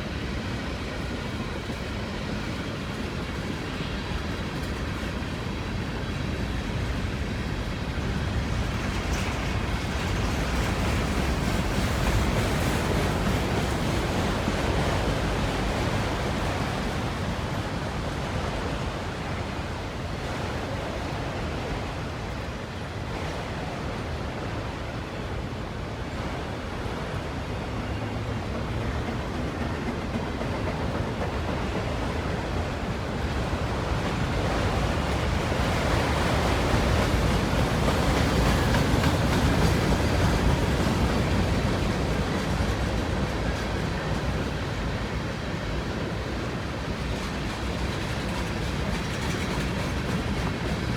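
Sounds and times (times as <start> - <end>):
freight train rolling past: 0.0 - 50.9.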